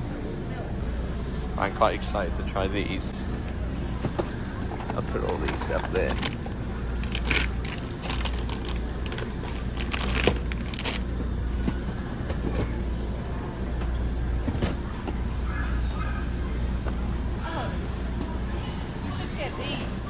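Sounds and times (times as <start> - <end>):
shopping cart wheels rattling: 0.8 - 20.0
goods clattering in basket: 2.0 - 19.0.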